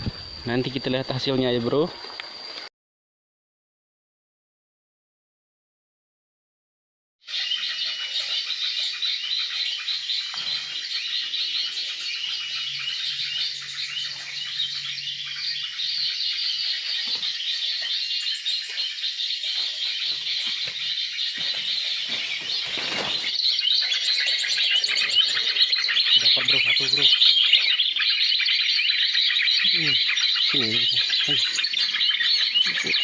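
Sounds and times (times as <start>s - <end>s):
birds chirping: 7.3s - 33.0s
short rustle: 22.1s - 23.4s.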